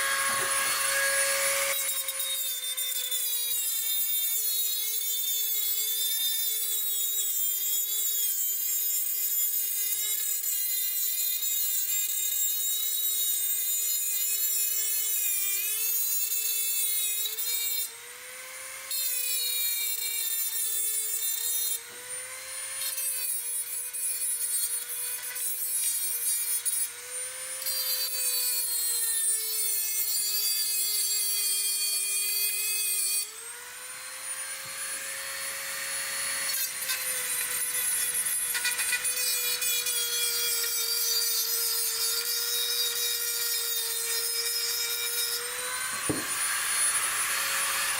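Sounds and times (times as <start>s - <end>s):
grinder motor whine: 0.0s - 2.2s, 33.2s - 39.1s, 44.4s - 47.9s.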